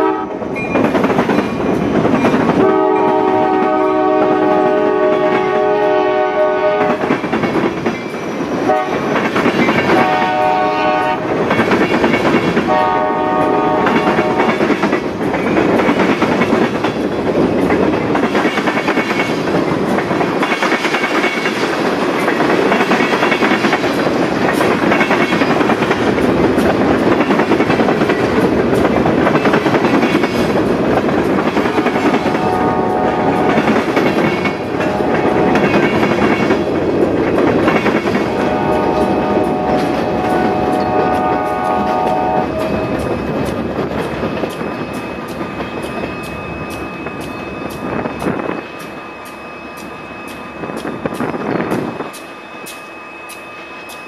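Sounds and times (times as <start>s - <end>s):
distant locomotive horn blasts: 0.0s - 0.5s, 2.6s - 7.0s, 8.6s - 9.0s, 9.9s - 11.4s, 12.7s - 14.6s, 31.8s - 36.0s, 38.2s - 43.1s
freight train wheels clattering: 0.0s - 54.0s.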